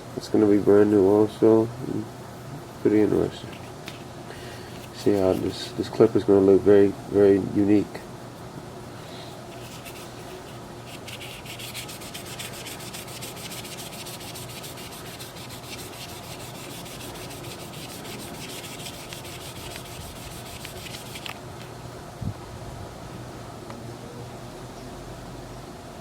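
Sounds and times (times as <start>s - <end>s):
abrasive pad rubbing plastic: 4.8s - 5.7s, 8.8s - 21.4s.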